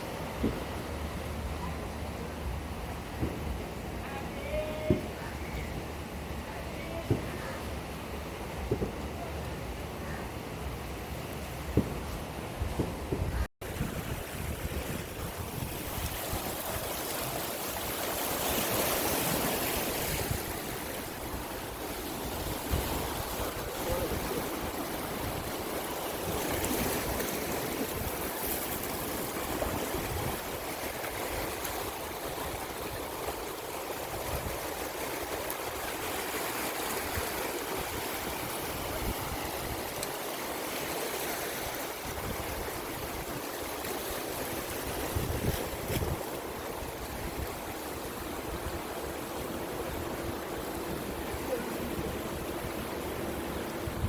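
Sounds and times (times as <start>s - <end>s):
wind buffeting microphone: 10.6s - 40.9s, 41.6s - 54.0s
sea water splashing: 13.6s - 54.0s.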